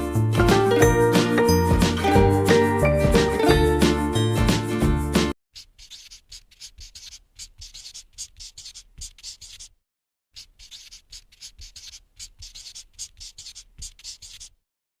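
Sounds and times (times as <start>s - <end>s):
pencil scratching on paper: 5.6s - 9.8s, 10.4s - 14.6s.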